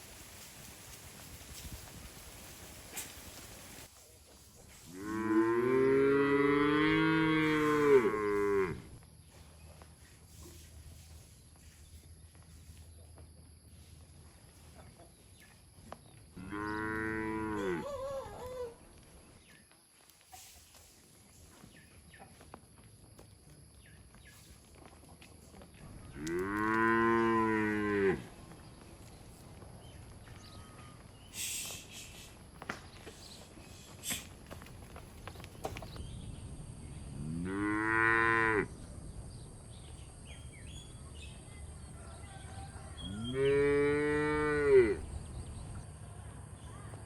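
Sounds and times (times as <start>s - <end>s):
cows mooing: 4.9s - 9.0s, 16.4s - 18.1s, 26.2s - 28.3s, 37.1s - 38.7s, 43.0s - 45.0s.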